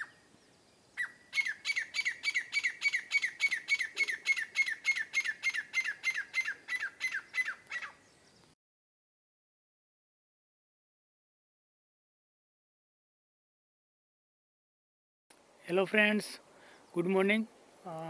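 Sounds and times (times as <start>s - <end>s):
bird squawking: 1.0s - 8.1s.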